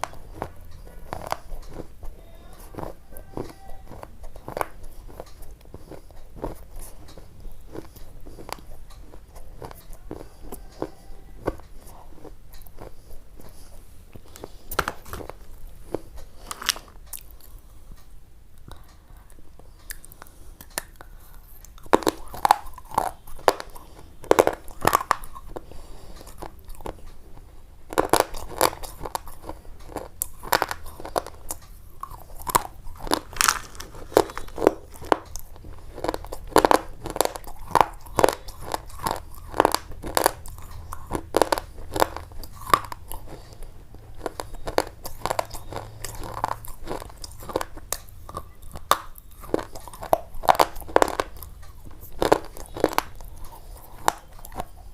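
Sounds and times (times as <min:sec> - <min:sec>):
sharp crunching clicks: 0:21.6 - 0:54.8.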